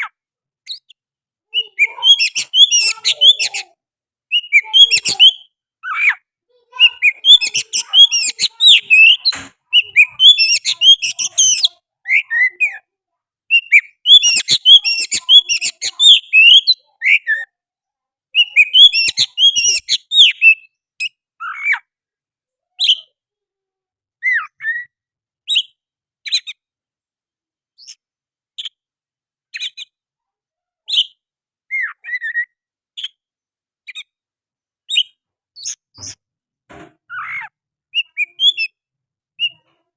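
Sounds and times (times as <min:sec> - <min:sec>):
bird singing whistled phrases: 0:04.3 - 0:06.1, 0:06.8 - 0:12.8, 0:13.5 - 0:17.5, 0:18.4 - 0:20.7, 0:37.2 - 0:38.8.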